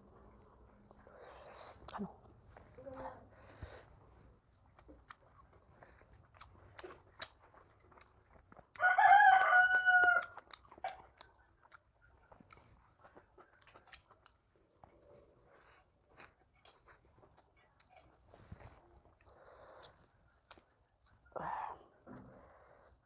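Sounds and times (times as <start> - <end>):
people chewing: 0.0 - 23.0
rooster crowing: 8.8 - 10.4.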